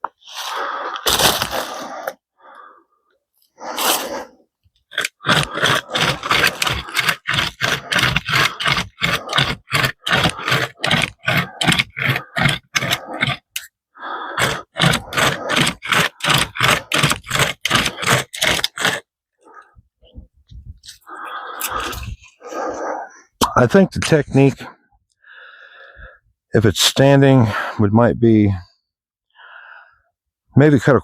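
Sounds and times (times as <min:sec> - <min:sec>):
hand chainsaw rasping through wood: 0:03.6 - 0:19.7, 0:21.0 - 0:23.1.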